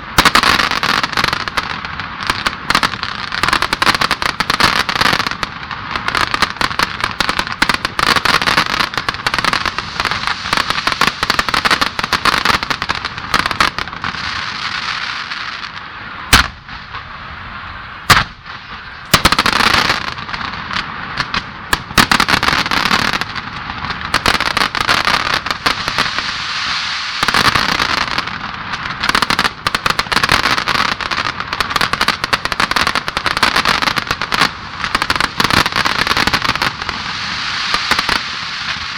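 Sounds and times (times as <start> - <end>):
fireworks crackling: 0.0 - 38.9
loud firework shell bangs: 18.0 - 19.9.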